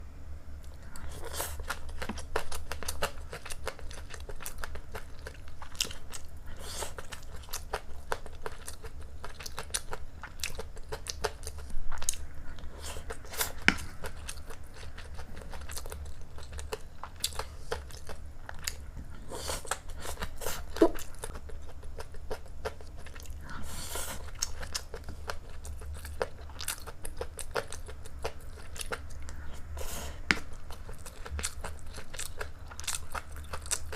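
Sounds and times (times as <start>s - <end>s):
low hum: 0.0s - 8.1s
chewing and biting food: 0.8s - 33.9s.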